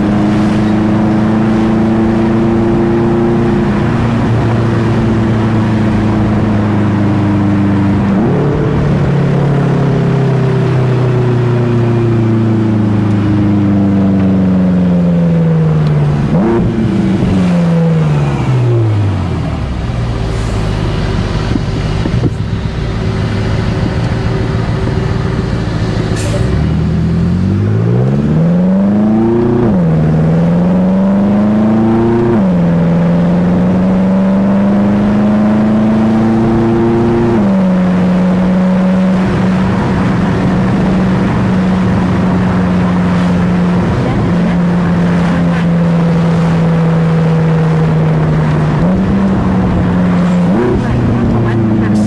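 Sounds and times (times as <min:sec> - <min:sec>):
car engine revving and accelerating: 0:00.0 - 0:52.0.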